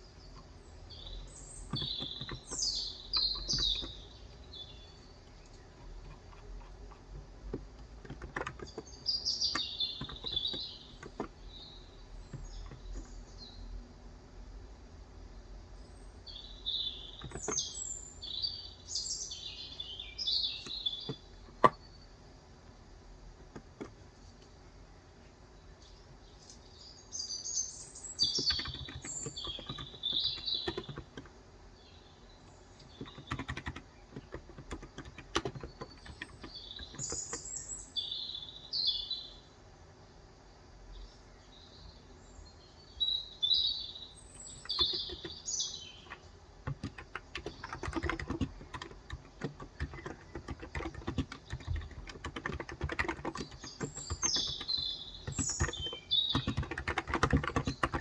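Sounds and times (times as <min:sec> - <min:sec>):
small bird chirping: 0:00.0 - 0:13.7, 0:15.8 - 0:22.2, 0:25.6 - 0:39.5, 0:40.9 - 0:58.0
keyboard typing: 0:00.3 - 0:11.6, 0:12.2 - 0:13.2, 0:17.2 - 0:17.8, 0:20.6 - 0:21.8, 0:23.5 - 0:24.1, 0:28.2 - 0:31.4, 0:32.8 - 0:37.6, 0:44.5 - 0:58.0.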